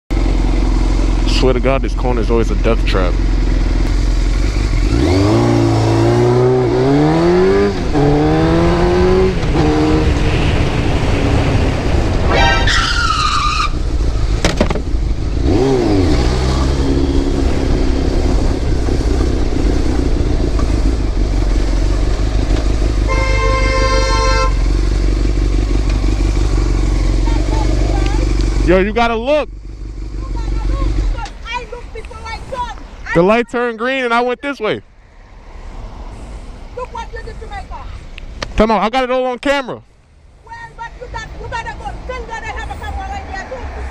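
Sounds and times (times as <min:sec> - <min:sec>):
motorcycle engine accelerating: 0:00.1 - 0:12.6, 0:13.6 - 0:31.9
wind noise: 0:07.1 - 0:24.5
car horn: 0:12.2 - 0:13.7, 0:23.0 - 0:24.8
high squeal falling in pitch: 0:12.3 - 0:13.8
sharp knock: 0:14.4 - 0:14.9.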